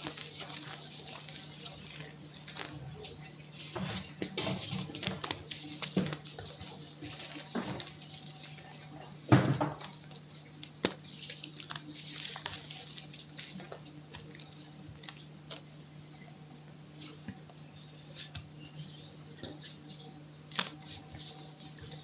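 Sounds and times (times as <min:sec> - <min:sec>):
chalk crunching and crumbling: 0:00.0 - 0:17.3, 0:18.1 - 0:22.0
chalk snapping: 0:09.8 - 0:15.7, 0:20.5 - 0:22.0.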